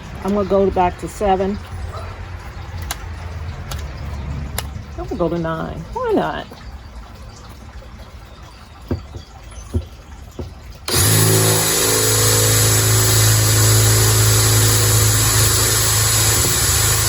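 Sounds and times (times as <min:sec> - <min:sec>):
small knocks: 0:08.8 - 0:10.9
power drill boring plant pot: 0:10.9 - 0:17.0.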